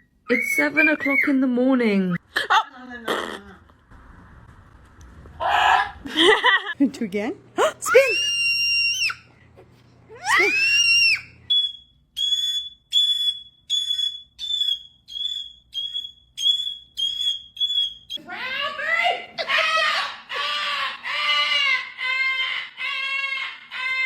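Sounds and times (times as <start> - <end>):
parrot screeching: 7.9 - 9.3, 10.2 - 24.0.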